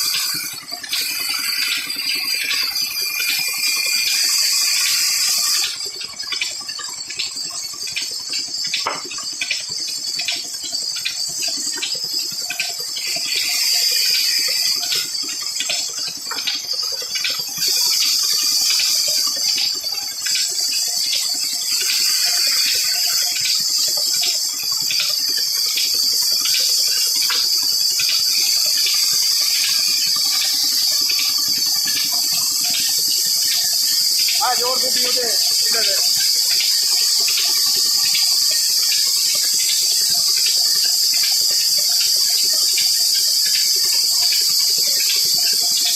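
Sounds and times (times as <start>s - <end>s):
steady hiss: 34.3s - 36.9s.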